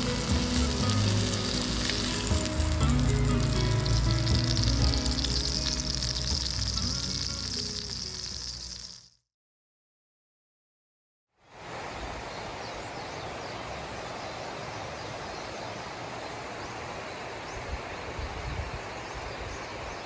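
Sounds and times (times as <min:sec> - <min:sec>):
even outdoor rushing noise: 0:00.0 - 0:08.6, 0:11.5 - 0:20.0
wind rumbling on microphone: 0:11.6 - 0:20.0.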